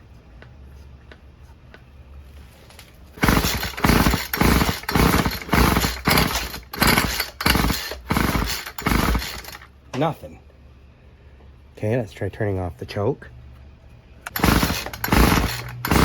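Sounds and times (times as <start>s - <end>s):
recoil starter rope pulls: 2.7s - 9.7s, 14.3s - 16.0s
engine turning over: 3.2s - 9.7s, 14.2s - 16.0s.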